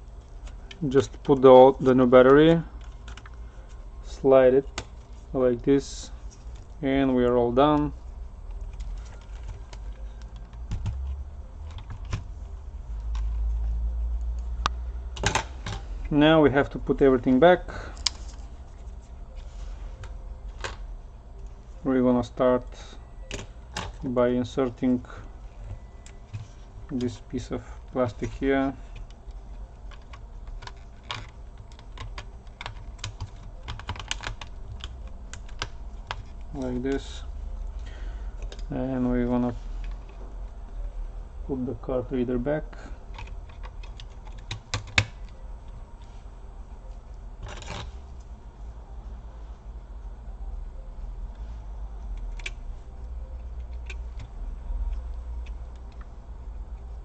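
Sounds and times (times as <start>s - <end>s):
steady low hum: 0.0s - 57.0s
clicks of laptop parts handled: 15.2s - 15.8s.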